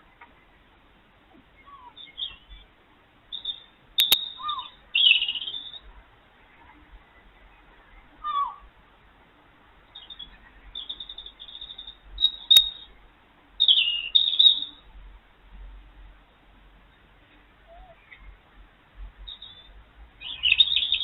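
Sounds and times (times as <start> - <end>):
birds chirping and trilling: 1.3 - 8.7, 9.9 - 13.0, 13.6 - 14.9, 16.8 - 18.4, 19.2 - 21.0
short falling bird call: 8.2 - 8.6.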